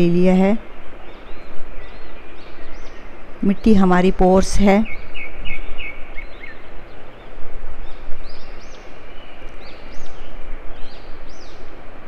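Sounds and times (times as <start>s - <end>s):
continuous rushing noise: 0.0s - 12.0s
birds whistling: 4.8s - 11.7s.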